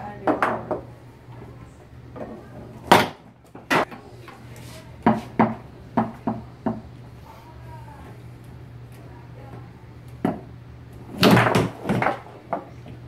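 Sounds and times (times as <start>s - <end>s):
foosball ball clacking: 0.2s - 0.9s, 2.1s - 4.0s, 11.1s - 12.7s.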